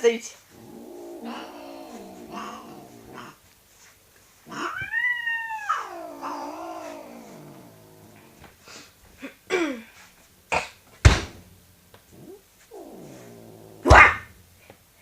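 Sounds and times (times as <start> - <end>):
cat growling: 0.5 - 3.4, 4.4 - 8.5, 12.1 - 14.3
cat hissing: 0.5 - 3.4, 4.4 - 8.9, 12.1 - 14.3.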